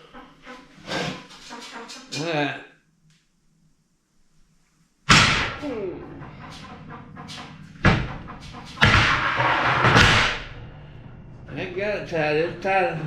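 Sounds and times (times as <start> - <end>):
heavy metal bangs: 5.1 - 12.6
metal grinding and scraping: 6.1 - 12.7.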